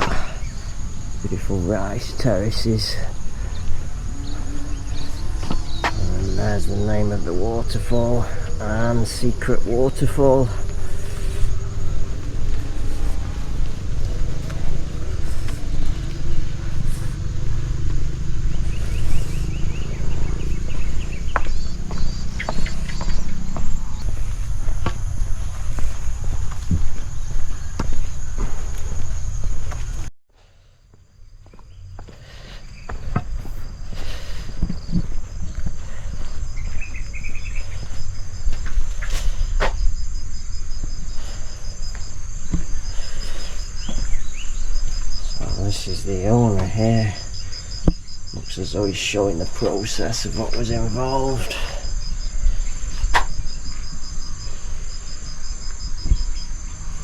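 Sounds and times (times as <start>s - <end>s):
birds chirping: 0.0s - 30.1s, 31.0s - 57.0s
insects trilling: 0.0s - 30.1s, 30.8s - 57.0s
low rumble: 8.3s - 30.1s.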